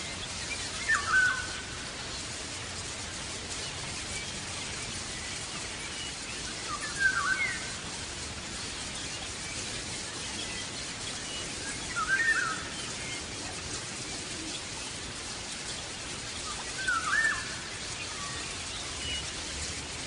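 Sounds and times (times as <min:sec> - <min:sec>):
background hiss: 0:00.0 - 0:20.0
bird chirping: 0:00.1 - 0:02.3.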